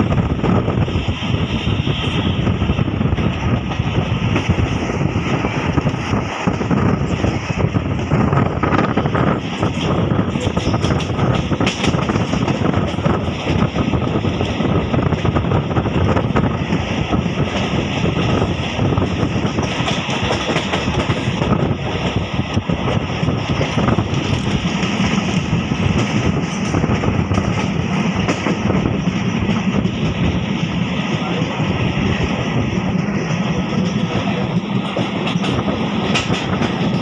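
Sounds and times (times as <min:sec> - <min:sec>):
train wheels rumbling on rails: 0:00.0 - 0:37.0
wheels clicking over rail joints: 0:07.9 - 0:15.4, 0:16.0 - 0:30.3, 0:32.8 - 0:37.0.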